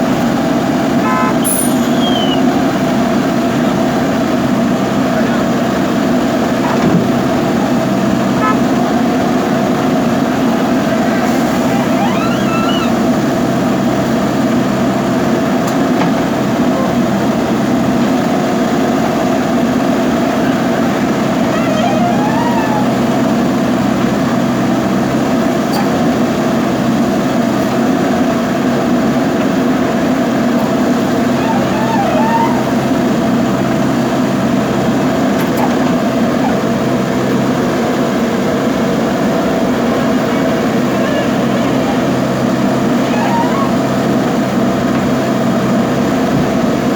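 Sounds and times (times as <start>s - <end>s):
diesel engine running under load: 0.0s - 46.9s.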